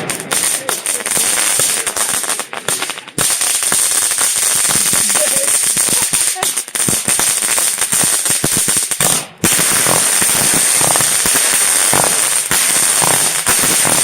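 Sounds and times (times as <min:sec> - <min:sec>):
fireworks crackling with hiss: 0:00.0 - 0:14.0
fireworks popping: 0:00.0 - 0:14.0.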